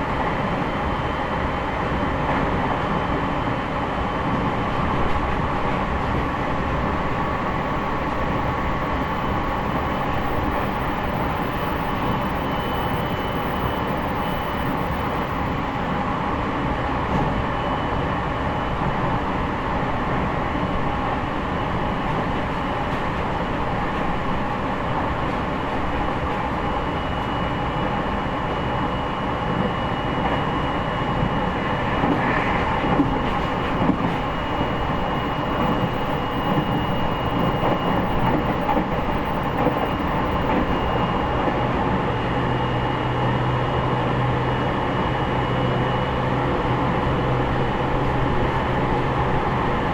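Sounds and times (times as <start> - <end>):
train wheels on rail and motors: 0.0 - 49.9
low hum: 31.4 - 35.4.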